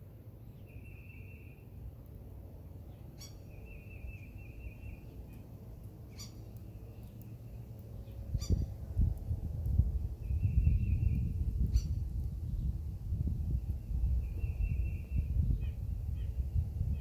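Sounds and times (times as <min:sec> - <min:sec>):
sharp bird calls: 0:02.9 - 0:05.5, 0:06.1 - 0:08.7
high buzzy bird trills: 0:03.1 - 0:05.4, 0:06.1 - 0:08.7
low rumble: 0:06.8 - 0:17.0.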